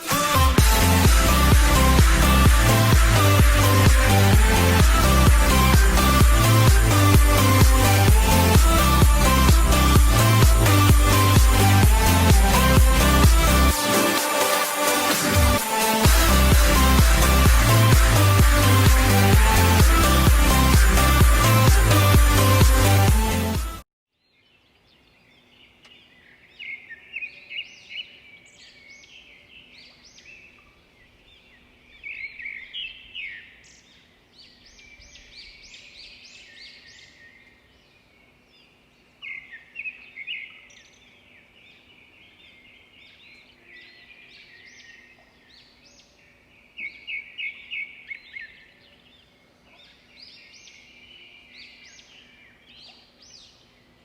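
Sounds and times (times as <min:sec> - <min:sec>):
small birds chirping: 0:24.2 - 0:54.0.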